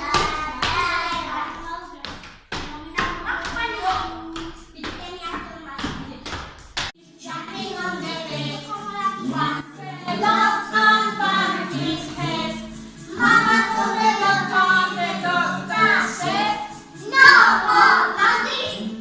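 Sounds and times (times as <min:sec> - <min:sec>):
backing music: 0:00.0 - 0:01.9, 0:06.8 - 0:19.0
voices singing: 0:07.0 - 0:19.0.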